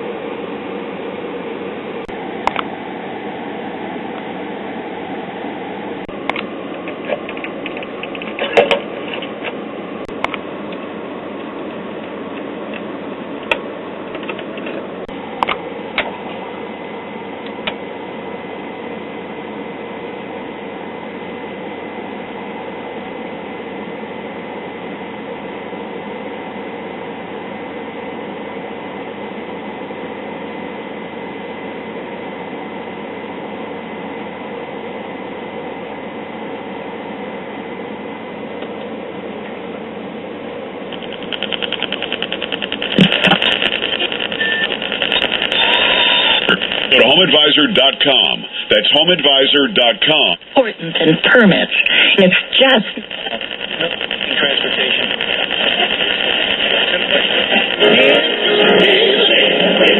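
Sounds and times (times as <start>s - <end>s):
radio static hiss: 0.0s - 10.8s, 38.9s - 59.9s
sharp crackles and clicks: 40.9s - 58.4s.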